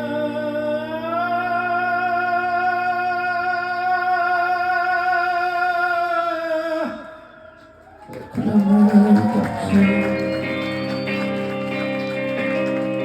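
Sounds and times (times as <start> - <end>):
man singing long note: 8.4 - 10.1.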